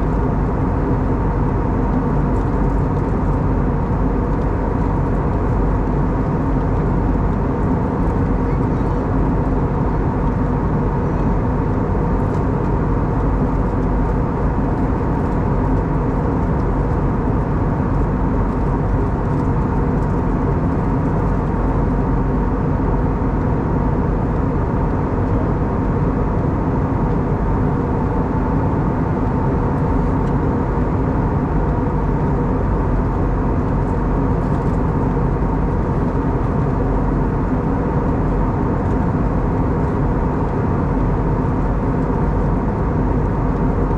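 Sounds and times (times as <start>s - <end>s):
aircraft engine hum: 0.0s - 43.9s.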